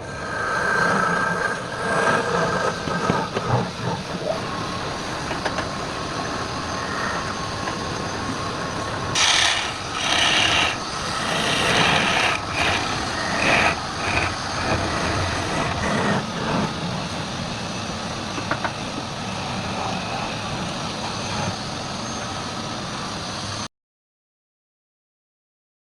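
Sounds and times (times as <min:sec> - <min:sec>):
wood lathe running: 0:00.0 - 0:18.7
turning tool scraping wood: 0:09.2 - 0:16.7.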